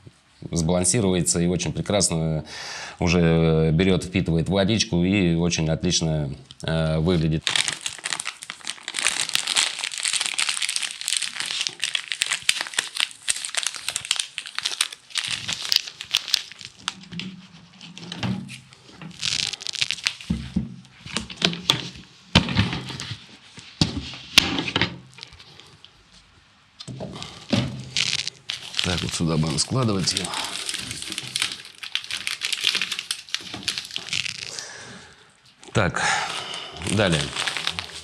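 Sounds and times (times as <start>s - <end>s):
packaging crinkling and rustling: 7.1s - 25.9s, 27.1s - 34.8s, 35.6s - 38.0s.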